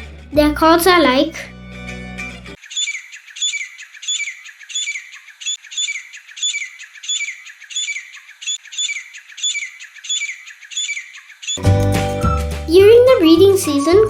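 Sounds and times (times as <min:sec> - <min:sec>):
francolin calling: 0:02.6 - 0:12.7.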